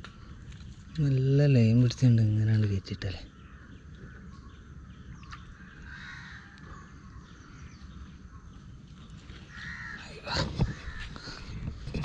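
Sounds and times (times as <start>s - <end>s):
bird calling: 2.5s - 11.8s.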